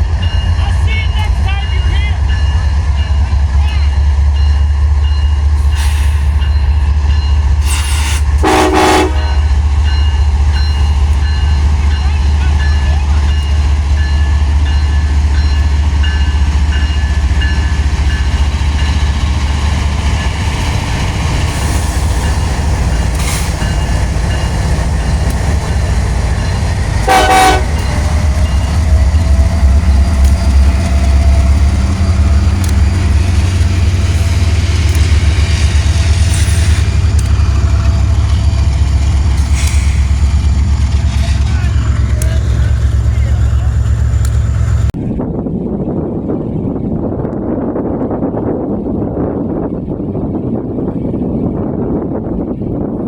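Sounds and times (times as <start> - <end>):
train rumbling past: 0.0 - 53.0
train horn toot: 7.7 - 9.6, 27.0 - 28.2.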